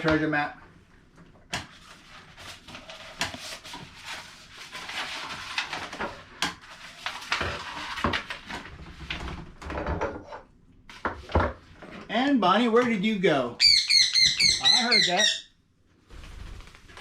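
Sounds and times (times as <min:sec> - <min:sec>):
paper rustling: 0:01.7 - 0:09.3.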